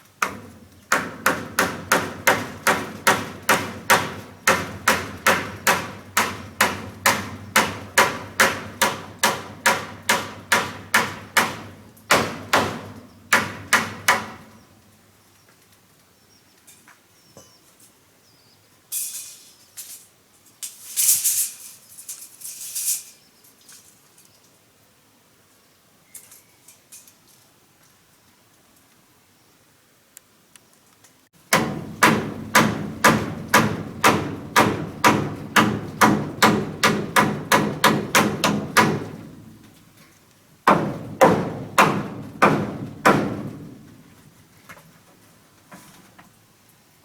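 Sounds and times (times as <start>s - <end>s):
rustling: 18.9s - 24.6s.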